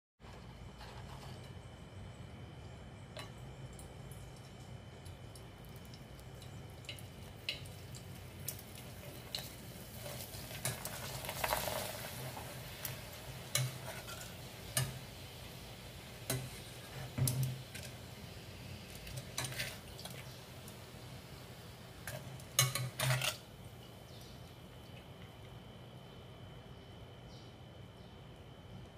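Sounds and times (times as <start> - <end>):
steady low hum: 0.2 - 28.9
hot oil sizzling: 3.1 - 24.7
metal tongs clicking on pot: 12.8 - 15.0, 22.0 - 23.4.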